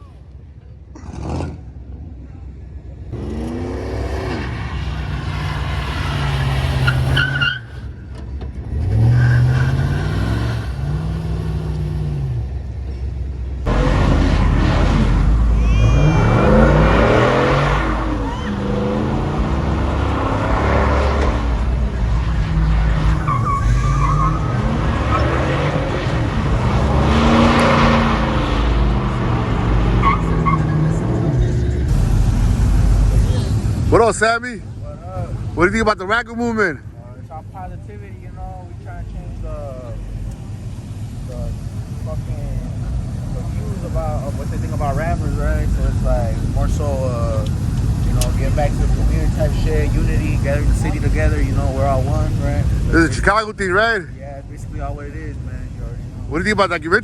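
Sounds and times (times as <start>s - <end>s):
tyres skidding: 3.0s - 57.0s
truck engine revving: 3.1s - 57.0s
high squeal: 13.8s - 21.5s, 22.3s - 28.9s
short high squeaks: 23.0s - 26.2s.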